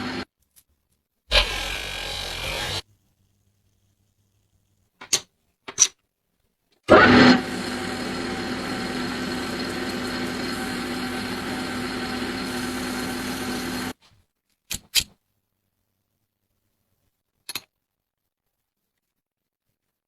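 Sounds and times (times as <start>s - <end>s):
small electric motor whining: 1.3s - 2.8s, 6.9s - 14.0s.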